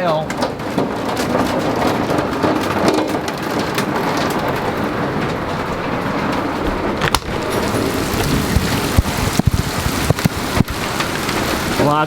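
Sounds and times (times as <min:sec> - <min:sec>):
hailstones ticking on metal: 0:00.0 - 0:12.0
heavy rain hissing: 0:03.3 - 0:12.0.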